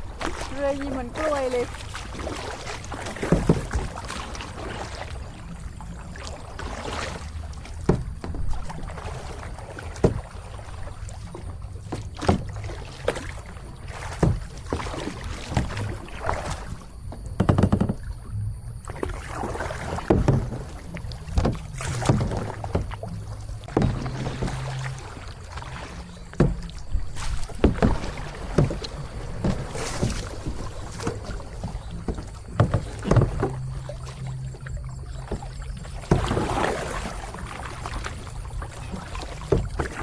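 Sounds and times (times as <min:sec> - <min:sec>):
paddle strokes splashing in water: 0:00.0 - 0:40.0
steady low rumble: 0:18.0 - 0:40.0.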